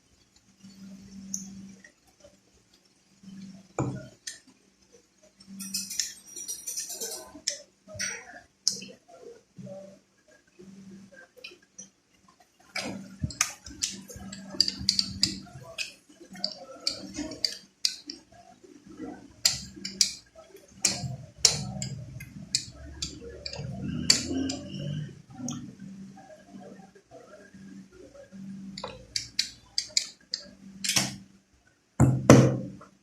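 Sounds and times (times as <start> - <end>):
utensils clicking and knocking: 5.4 - 8.9, 12.8 - 18.3, 18.9 - 25.6, 28.8 - 31.2.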